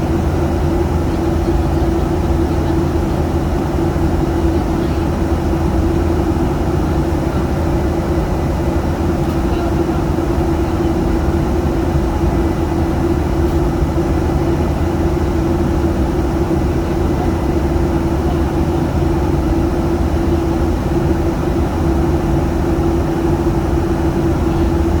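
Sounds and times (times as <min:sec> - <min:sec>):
airliner engine drone: 0:00.0 - 0:25.0.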